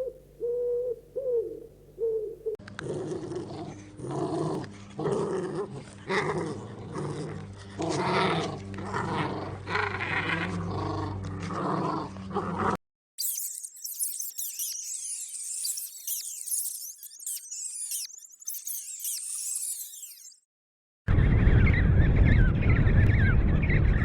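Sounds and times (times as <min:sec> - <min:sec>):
dog growling: 0:02.7 - 0:12.8.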